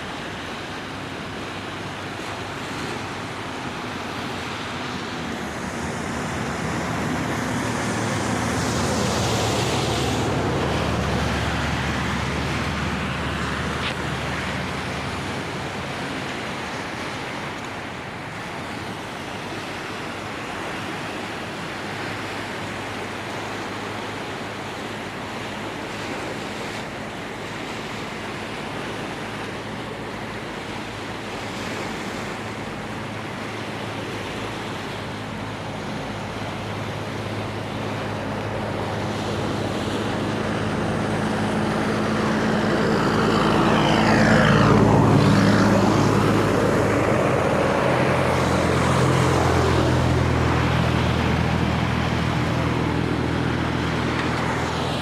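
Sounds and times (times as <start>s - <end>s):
vehicle passing by: 0.0s - 17.8s, 28.8s - 55.0s.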